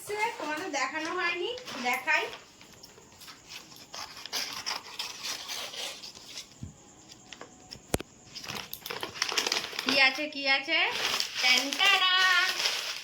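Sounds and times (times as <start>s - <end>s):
packaging tearing and rustling: 3.3s - 6.5s, 8.3s - 10.2s, 10.9s - 13.0s.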